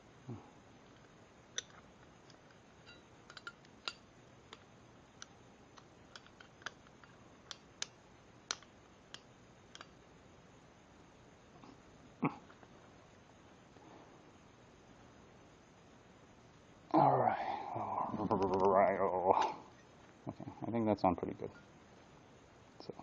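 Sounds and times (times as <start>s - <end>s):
small parts clicking and tapping: 0.8s - 10.0s.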